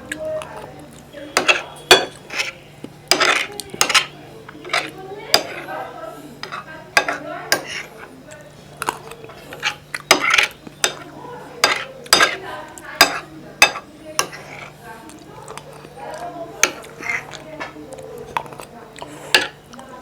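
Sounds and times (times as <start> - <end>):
wet chewing sounds: 0.0 - 5.0, 8.0 - 11.1, 14.2 - 19.9
spoon scraping a dish: 0.1 - 19.8.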